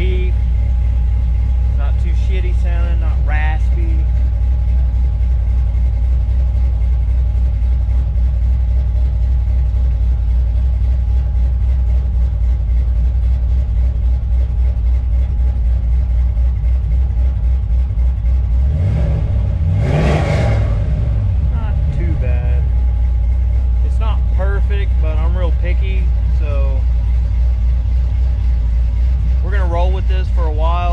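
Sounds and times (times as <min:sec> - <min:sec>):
engine exhaust rumbling: 0:00.0 - 0:30.9.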